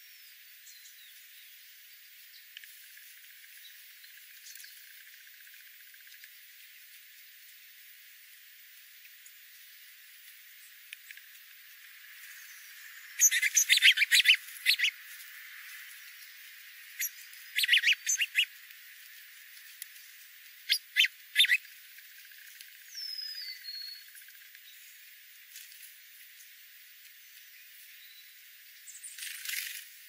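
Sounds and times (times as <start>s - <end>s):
birds chattering: 12.3s - 15.0s, 16.9s - 18.6s, 20.6s - 21.7s.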